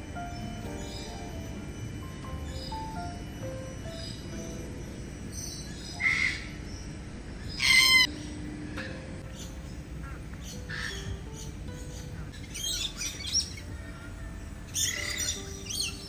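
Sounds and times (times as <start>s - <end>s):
birds calling: 0.0s - 16.0s
harsh bird squawk: 5.9s - 6.6s, 7.5s - 8.3s, 9.3s - 16.0s.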